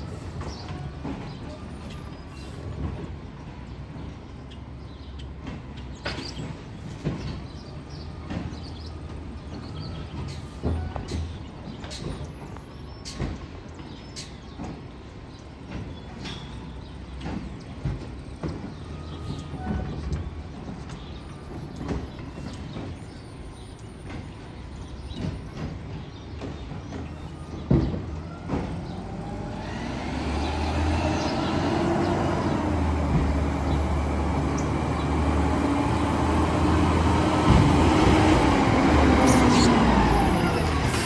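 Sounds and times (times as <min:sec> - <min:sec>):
garbage truck engine: 0:15.6 - 0:41.0.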